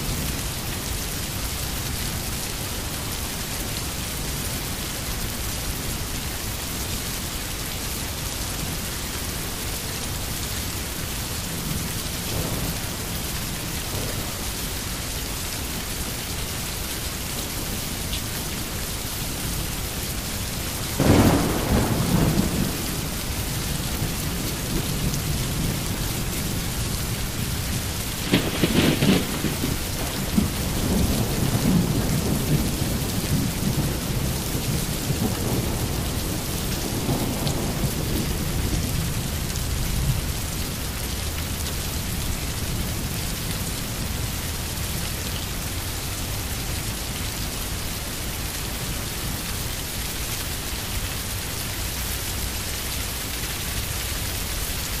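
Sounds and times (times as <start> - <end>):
steady rain: 0.0 - 55.0
thunder rumble: 11.5 - 14.6, 21.0 - 40.3
thunder crack: 21.0 - 23.1, 28.2 - 36.1.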